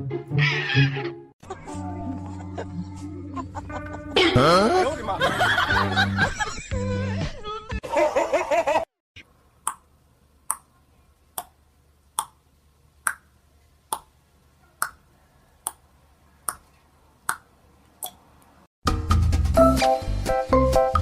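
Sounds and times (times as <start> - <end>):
music: 0.0 - 7.8, 18.8 - 21.0
laughter: 3.4 - 6.8, 7.8 - 8.9.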